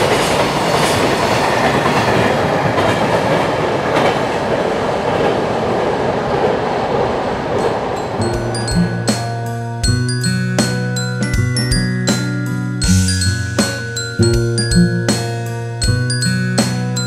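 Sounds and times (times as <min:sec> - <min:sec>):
freight train passing: 0:00.0 - 0:17.0
mallet percussion jingle: 0:08.1 - 0:17.0.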